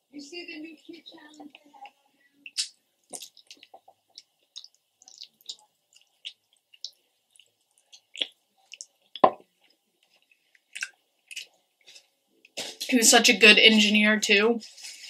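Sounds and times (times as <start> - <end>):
wet mouth clicks and smacks: 2.4 - 9.4, 10.6 - 11.5
gnawing and chewing meat: 2.5 - 12.1.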